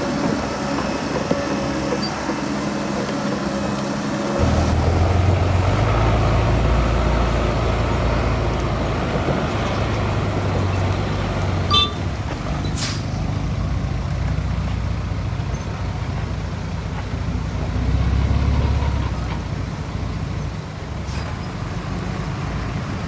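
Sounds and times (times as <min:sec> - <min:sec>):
heavy diesel engines running: 0:00.0 - 0:23.0
high squeak: 0:11.7 - 0:13.0
air brake hiss: 0:12.7 - 0:13.2.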